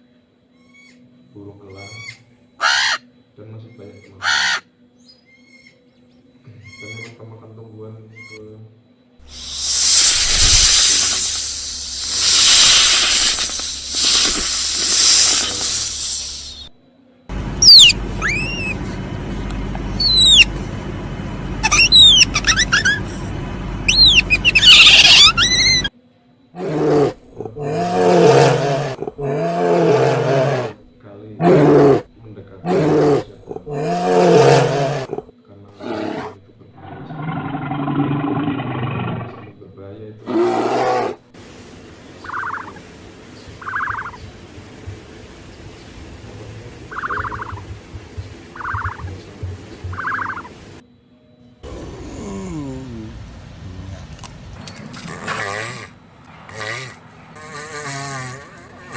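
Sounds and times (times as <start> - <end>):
bird harsh screech: 1.9 - 3.0, 4.2 - 4.6, 17.6 - 18.8, 20.0 - 20.5, 21.6 - 23.0, 23.9 - 25.9
low steady hum: 16.0 - 25.9
bird falling whistles: 17.6 - 18.8, 20.0 - 20.5, 21.6 - 23.0, 23.9 - 25.9
pulsed animal call: 17.6 - 19.0, 19.9 - 20.6, 21.6 - 25.9, 42.2 - 42.8, 43.6 - 44.2, 46.8 - 47.7, 48.5 - 49.2, 49.8 - 50.6, 51.6 - 53.3
big cat roaring: 26.6 - 30.8, 31.4 - 39.5, 40.2 - 41.2, 51.6 - 54.2, 54.8 - 58.9.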